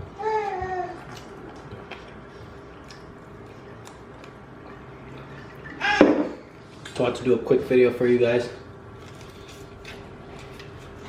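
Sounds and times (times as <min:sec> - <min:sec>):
person chewing food: 0:00.9 - 0:05.4.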